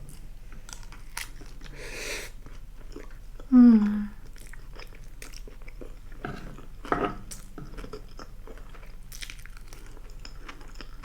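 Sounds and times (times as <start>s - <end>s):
close chewing: 0.1s - 1.7s, 2.3s - 11.0s.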